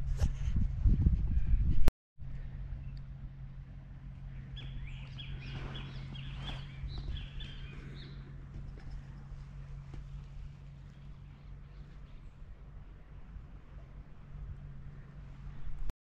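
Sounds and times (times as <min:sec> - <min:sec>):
low background hum: 0:00.0 - 0:15.9
bird chirping: 0:04.2 - 0:09.6.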